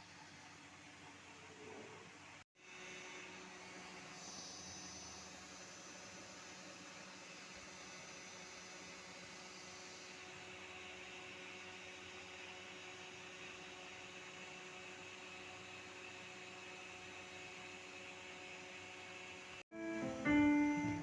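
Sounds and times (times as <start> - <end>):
electronic keyboard notes: 19.7 - 21.0.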